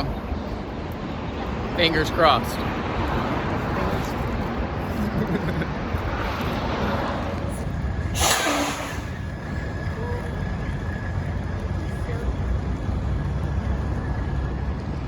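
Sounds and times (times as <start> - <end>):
vehicle engine running: 0.0 - 15.0
loud hissing air burst: 8.1 - 9.2.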